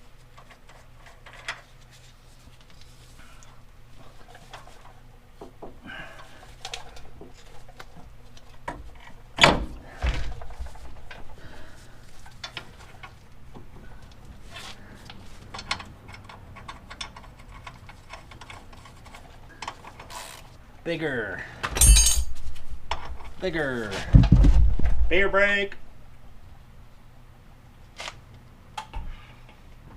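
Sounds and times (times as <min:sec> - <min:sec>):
metal parts clicking and clinking: 0:15.1 - 0:20.4, 0:21.7 - 0:23.2.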